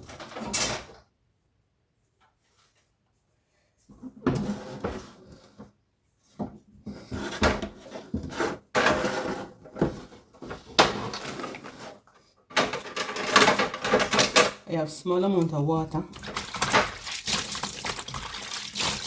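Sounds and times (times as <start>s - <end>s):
household items knocking and clattering: 6.4s - 14.7s, 15.4s - 19.0s.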